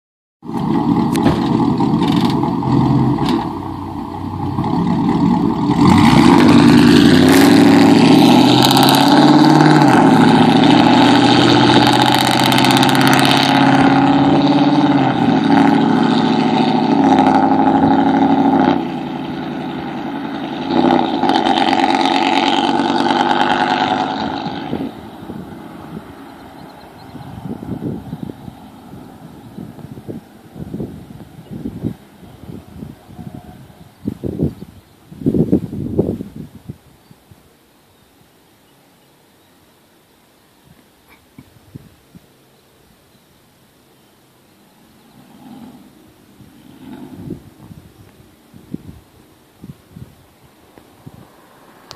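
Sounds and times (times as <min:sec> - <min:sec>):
loud vone engine revving: 0:00.4 - 0:34.2, 0:45.0 - 0:47.6.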